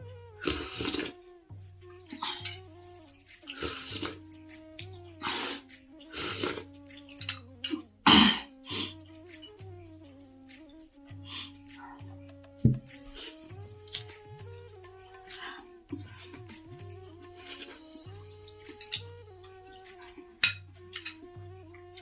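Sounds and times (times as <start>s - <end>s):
soft music with slow pulsing beat: 0.0s - 22.0s
wet slurps of noodle soup: 0.4s - 1.2s, 3.4s - 4.5s, 5.2s - 9.4s, 17.3s - 17.9s.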